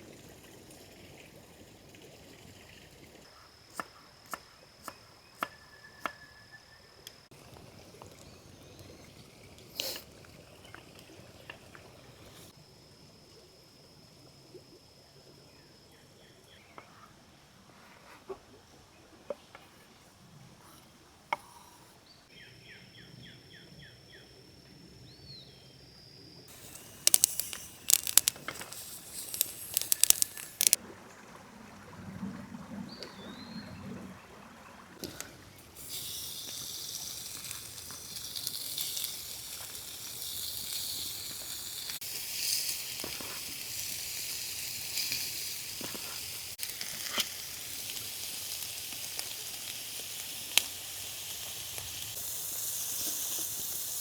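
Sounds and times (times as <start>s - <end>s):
food sizzling in a hot pan: 26.5s - 30.8s, 35.8s - 54.0s.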